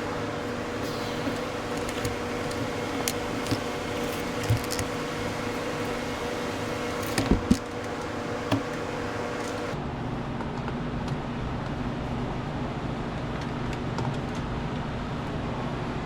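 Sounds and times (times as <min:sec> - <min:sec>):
handling knocks and clicks: 0:00.0 - 0:09.8
heat gun fan hum: 0:00.0 - 0:09.8.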